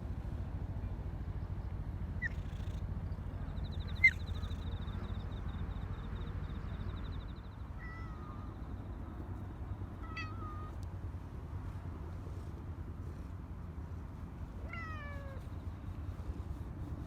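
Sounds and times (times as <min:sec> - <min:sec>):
steady low rumble: 0:00.0 - 0:17.0
cats crying: 0:10.0 - 0:10.8, 0:14.6 - 0:15.4.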